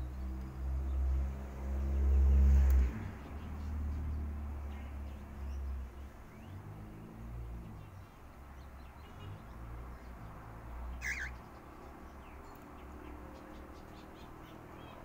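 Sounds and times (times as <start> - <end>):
bird chirping: 2.0 - 15.0
faint bird calls: 10.9 - 11.6.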